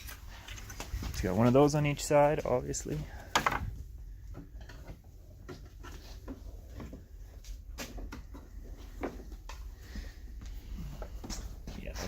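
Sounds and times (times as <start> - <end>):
small clicks and rustles: 0.0 - 1.6.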